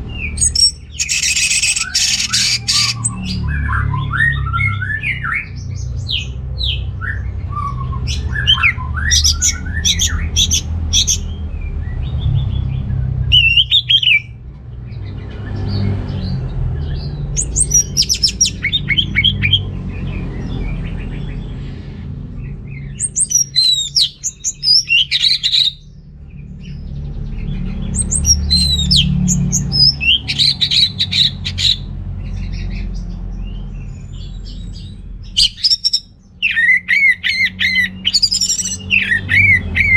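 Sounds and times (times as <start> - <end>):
thrush singing whistled phrases: 0.2 - 5.5, 7.1 - 11.3, 13.3 - 14.3, 17.4 - 19.6, 23.0 - 25.8, 28.0 - 31.9, 35.4 - 39.9.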